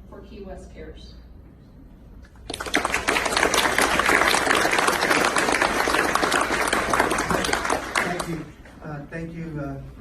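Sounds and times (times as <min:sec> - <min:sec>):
crowd applauding: 0:02.4 - 0:08.6.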